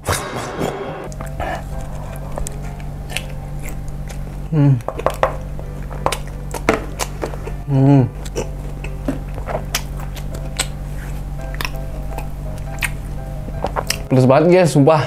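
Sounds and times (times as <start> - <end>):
steady low hum: 0.0 - 15.0
person humming: 1.1 - 5.2, 7.4 - 9.3
close chewing: 1.1 - 14.1.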